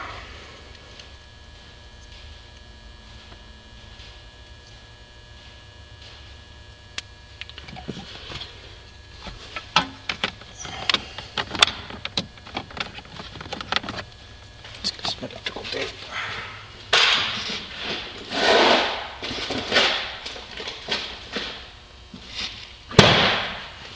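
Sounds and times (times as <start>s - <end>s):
faint hum: 0.0s - 23.9s
plastic parts clicking and rattling: 9.6s - 15.9s.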